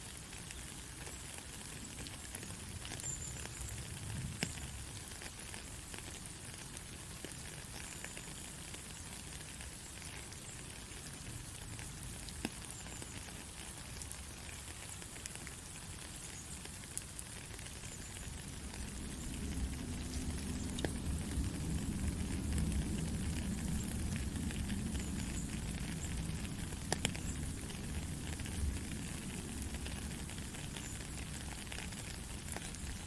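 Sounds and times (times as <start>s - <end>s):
heavy rain falling: 0.2s - 33.0s
low rumble: 18.4s - 28.8s.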